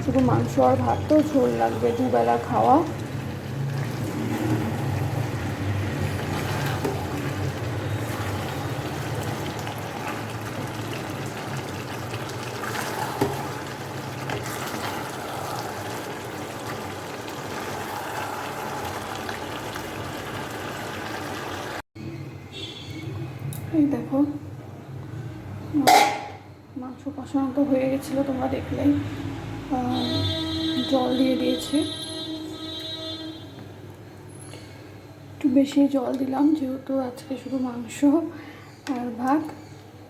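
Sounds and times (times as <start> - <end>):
curry sizzling in a pan: 0.0 - 21.8.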